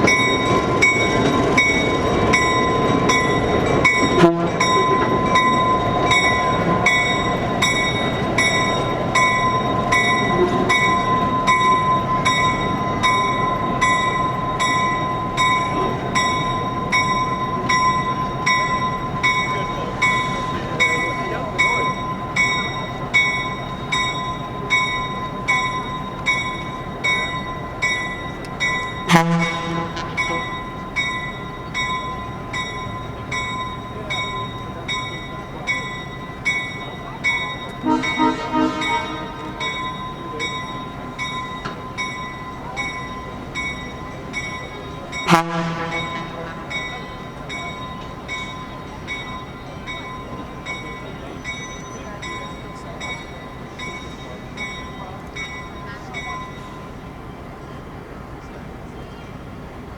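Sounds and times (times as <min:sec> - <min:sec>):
railroad bell ringing: 0:00.0 - 0:59.9
short horn sound: 0:04.2 - 0:04.6, 0:37.8 - 0:40.1.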